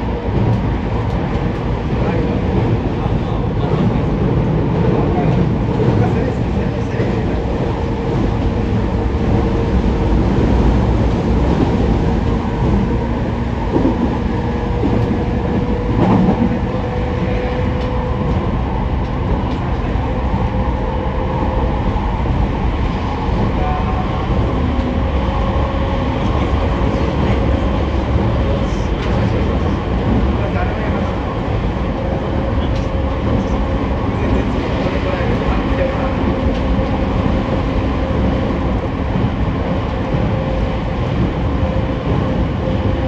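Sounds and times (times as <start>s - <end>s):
rumble of train wheels on rail: 0.0s - 43.0s.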